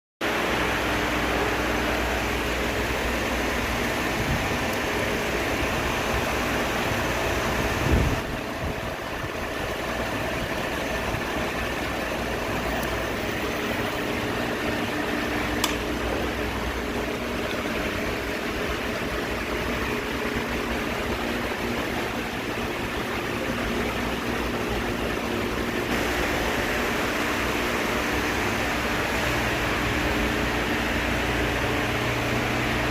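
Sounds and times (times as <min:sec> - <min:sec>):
air conditioning fan rushing: 0:00.2 - 0:32.9
car engine idling hum: 0:00.2 - 0:32.9
sharp click: 0:15.6 - 0:15.9.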